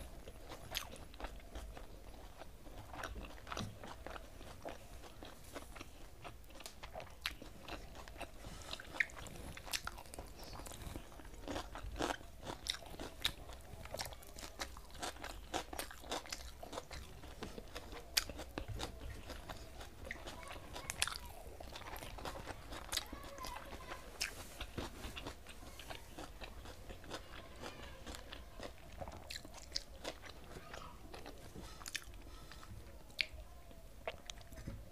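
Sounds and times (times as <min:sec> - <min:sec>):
person chewing crunchy food: 0:00.1 - 0:33.4, 0:34.0 - 0:34.8.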